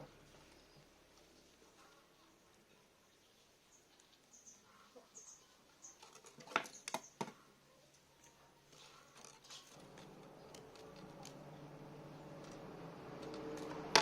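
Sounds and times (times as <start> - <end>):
low steady hum: 9.7 - 14.0.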